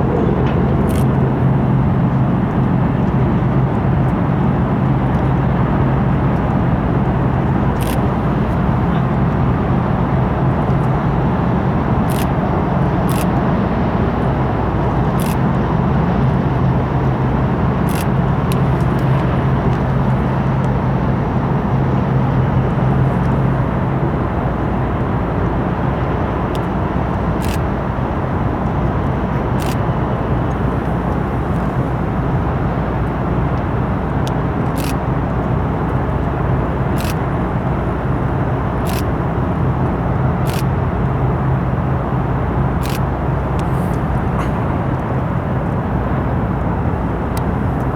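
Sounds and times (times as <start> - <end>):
ship engine machinery drone: 0.0 - 47.9
sharp clicks: 0.4 - 1.2, 7.7 - 8.6, 12.1 - 12.4, 13.1 - 13.4, 17.9 - 20.8, 27.4 - 27.7, 29.6 - 31.9, 33.6 - 35.1, 36.9 - 37.3, 38.8 - 39.1, 40.4 - 40.7.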